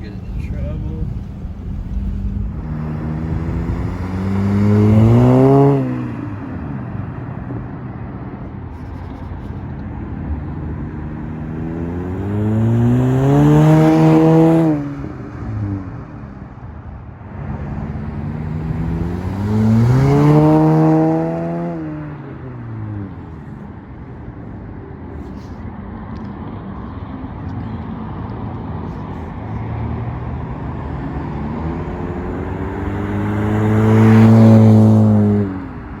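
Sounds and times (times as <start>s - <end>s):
wind noise on microphone: 0.0s - 6.2s
car exhaust revving: 0.0s - 6.4s, 17.8s - 22.6s, 30.5s - 36.0s.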